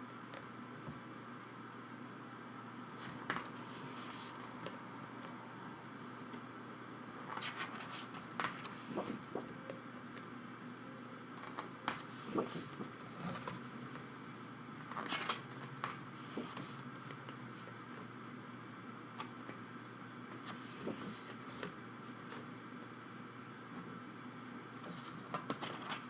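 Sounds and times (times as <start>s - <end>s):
book pages turning: 3.0s - 5.4s, 7.3s - 10.3s, 11.4s - 14.1s, 14.8s - 18.2s, 20.3s - 22.6s, 24.8s - 26.0s.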